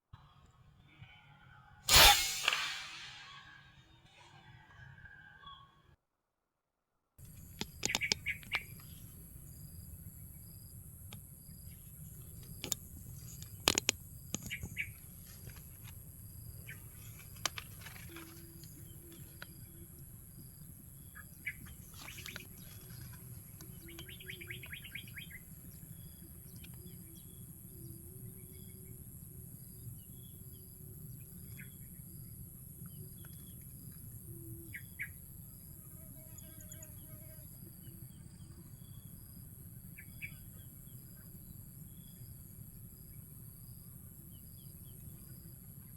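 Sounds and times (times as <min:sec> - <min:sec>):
short high peep: 0:01.9 - 0:03.6.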